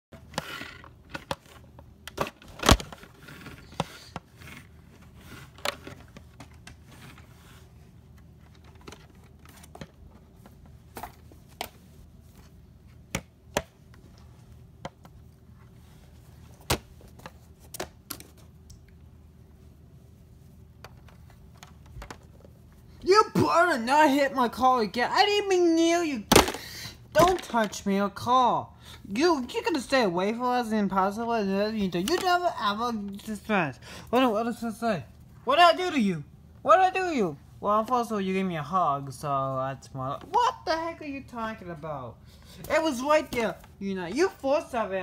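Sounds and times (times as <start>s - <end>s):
faint steady hum: 0.1s - 45.0s.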